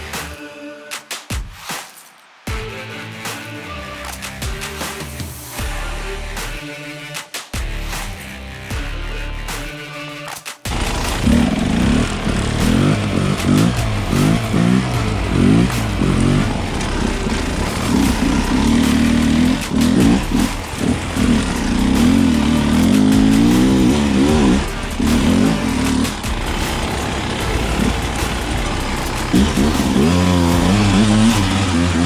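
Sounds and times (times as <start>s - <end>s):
dirt bike engine revving: 10.7s - 32.0s.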